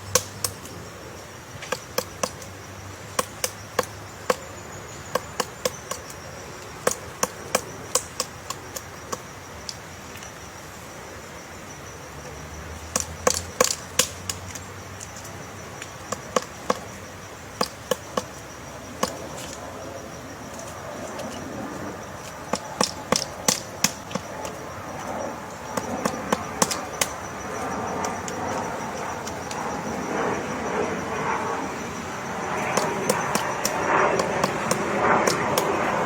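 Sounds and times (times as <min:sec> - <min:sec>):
woodpecker pecking wood: 0:00.0 - 0:00.8, 0:01.6 - 0:10.3, 0:12.2 - 0:19.6, 0:22.1 - 0:30.0, 0:32.2 - 0:36.0.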